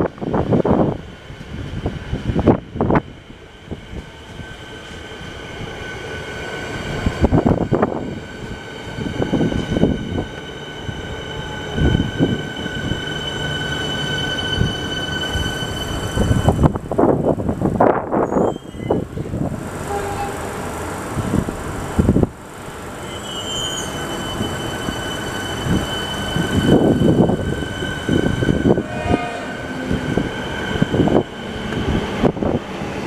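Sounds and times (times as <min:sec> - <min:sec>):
train wheels rumbling on track: 0:00.0 - 0:33.0
high-pitched wheel squeal: 0:09.0 - 0:16.8, 0:18.2 - 0:19.3, 0:23.0 - 0:31.8.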